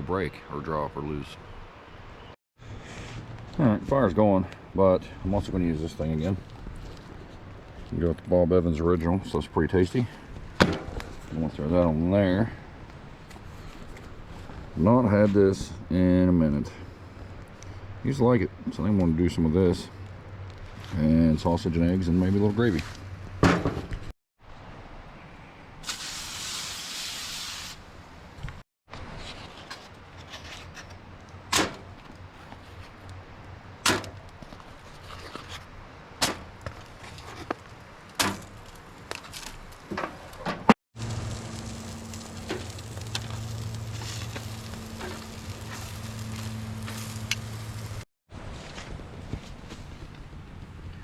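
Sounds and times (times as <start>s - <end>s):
brief hiss: 25.8s - 27.9s
steady low hum: 41.0s - 48.0s.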